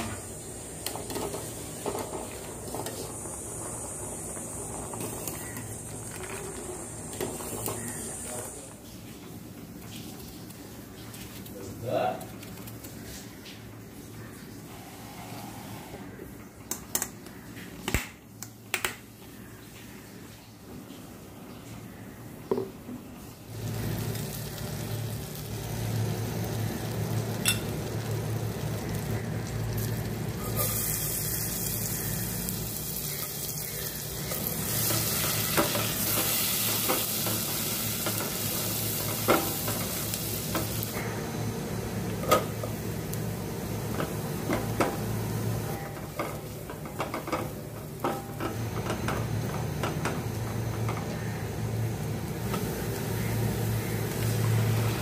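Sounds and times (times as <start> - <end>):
oil sizzling in a pan: 0.0 - 8.9, 23.5 - 55.0
steady low hum: 23.4 - 55.0.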